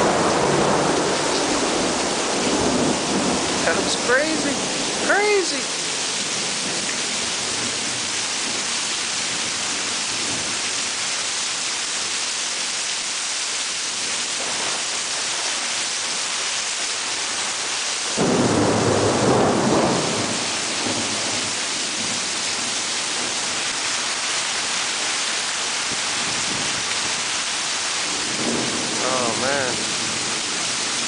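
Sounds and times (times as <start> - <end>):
thunder clap rumbling: 0.0 - 5.1, 18.2 - 23.6, 28.1 - 30.6
heavy rain hissing: 0.0 - 31.0.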